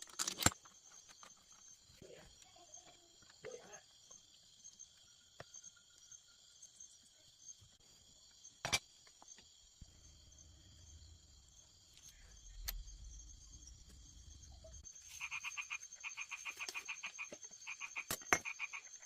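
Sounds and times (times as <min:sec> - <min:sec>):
crickets chirping: 0:00.0 - 0:19.0
low rumble: 0:09.8 - 0:14.9.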